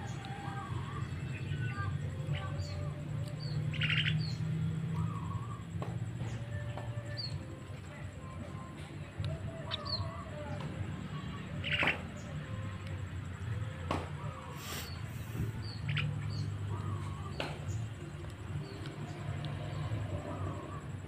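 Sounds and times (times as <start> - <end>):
myna whistled notes and chirps: 9.3 - 10.5.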